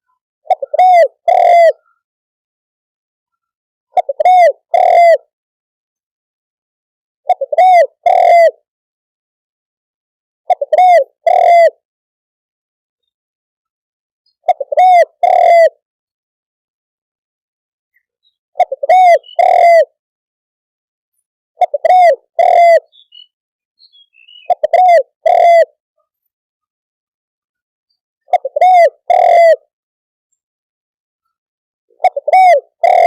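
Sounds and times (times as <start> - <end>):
dove cooing: 0.5 - 1.9, 4.0 - 5.3, 7.3 - 8.6, 10.5 - 11.8, 14.4 - 15.8, 18.6 - 20.0, 21.6 - 23.0, 24.4 - 25.7, 28.3 - 29.7, 32.0 - 33.0.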